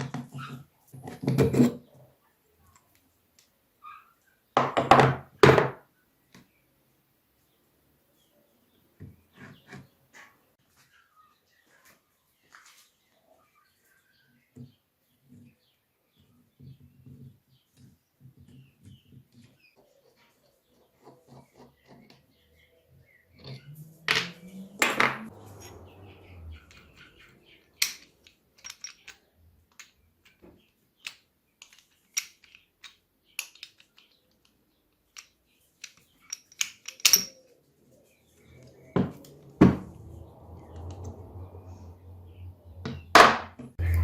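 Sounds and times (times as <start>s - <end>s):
metal parts clicking and knocking: 26.6s - 37.6s
low hum: 38.5s - 43.0s, 43.8s - 44.0s.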